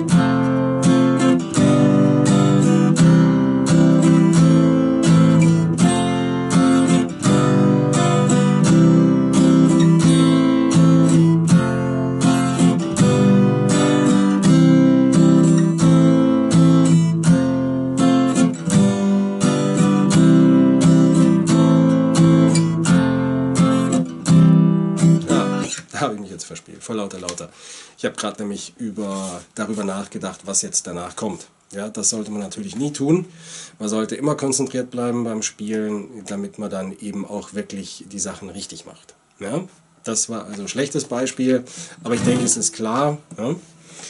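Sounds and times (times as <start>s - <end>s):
acoustic guitar strumming: 0.0s - 26.0s, 33.2s - 33.7s, 40.6s - 44.0s.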